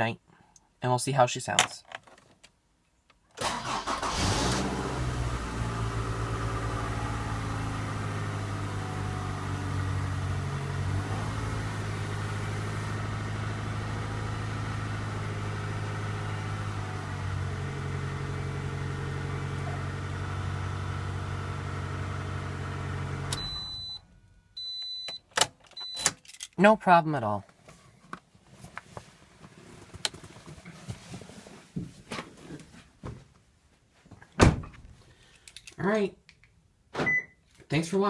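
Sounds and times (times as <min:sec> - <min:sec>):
car engine idling: 0:05.1 - 0:23.4.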